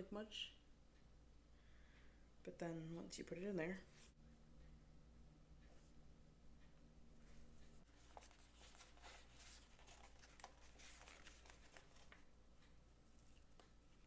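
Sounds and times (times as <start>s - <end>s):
paper rustling: 7.9s - 12.3s.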